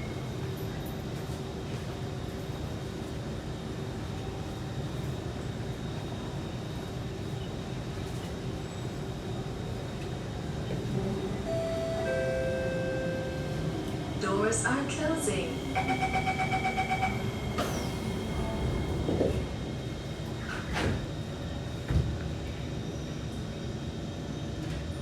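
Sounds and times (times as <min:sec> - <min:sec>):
train ventilation hum: 0:00.0 - 0:25.0.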